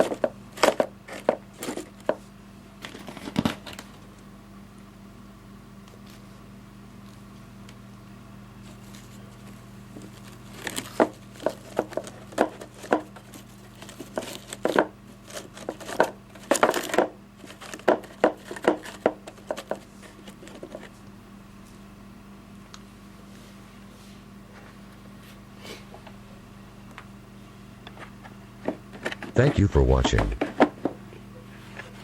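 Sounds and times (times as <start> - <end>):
steady low hum: 29.3 - 32.0.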